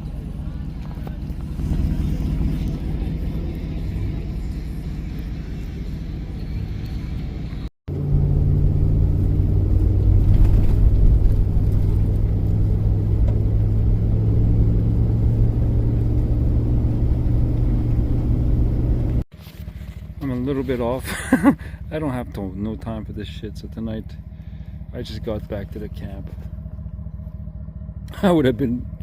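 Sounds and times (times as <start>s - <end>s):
engine and road rumble: 0.0s - 29.0s.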